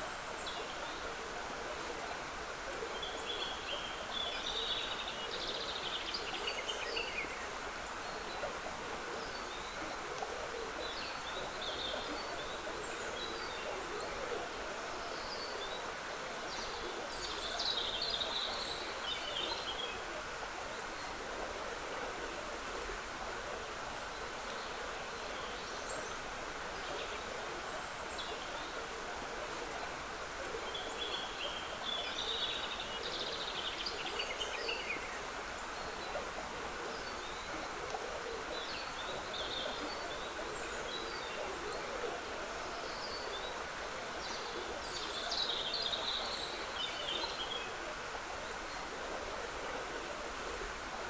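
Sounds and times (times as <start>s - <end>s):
stream trickling: 0.0s - 51.0s.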